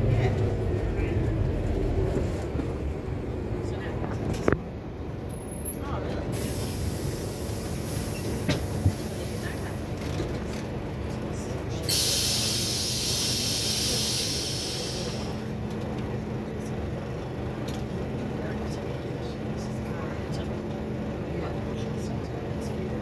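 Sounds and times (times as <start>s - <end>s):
bus engine rumble: 0.0s - 23.0s
air hiss: 11.9s - 15.4s.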